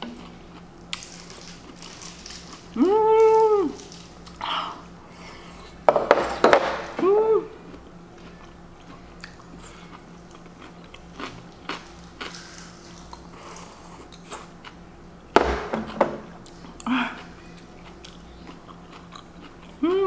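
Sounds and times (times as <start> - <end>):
person chewing: 0.0 - 5.8, 7.0 - 15.0, 16.3 - 20.0
dish knocking on table: 5.9 - 6.9, 15.4 - 16.3.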